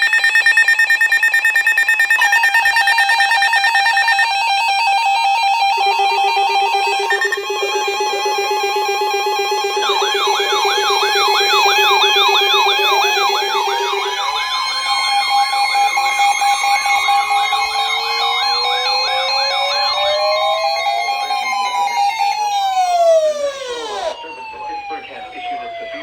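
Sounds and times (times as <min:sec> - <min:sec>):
two-tone alert tones: 0:00.0 - 0:24.9
fast low warble siren: 0:00.0 - 0:26.0
fast yelp siren: 0:00.0 - 0:26.0
slow rising siren wail: 0:00.0 - 0:26.0.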